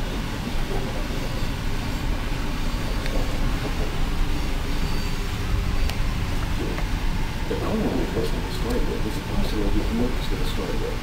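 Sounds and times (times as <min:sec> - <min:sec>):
train carriage rumble: 0:00.0 - 0:11.0.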